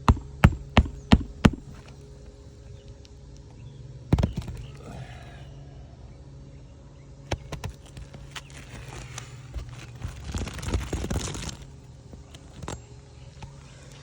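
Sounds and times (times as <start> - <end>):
sharp taps on shingles: 0.0 - 3.1, 4.1 - 4.8, 7.3 - 13.6
shingles scraping and crinkling: 7.3 - 14.0.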